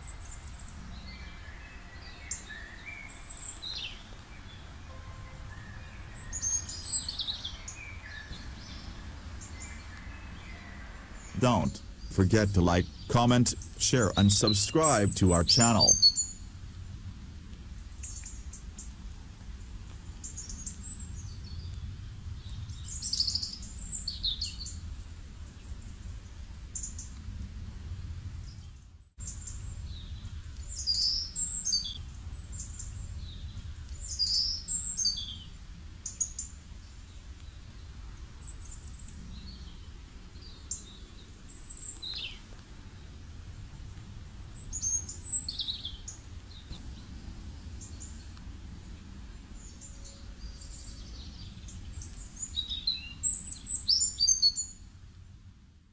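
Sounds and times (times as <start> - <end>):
birds chirping: 11.2 - 16.4.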